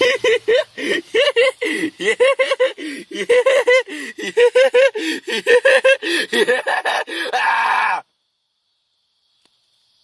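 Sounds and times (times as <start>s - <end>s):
person laughing hard: 0.0s - 8.0s.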